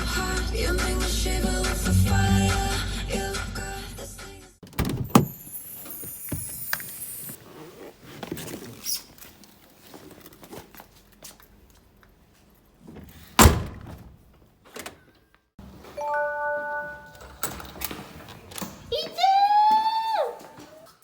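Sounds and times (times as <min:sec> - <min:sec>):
electronic chime: 0:01.9 - 0:03.0, 0:16.0 - 0:17.3.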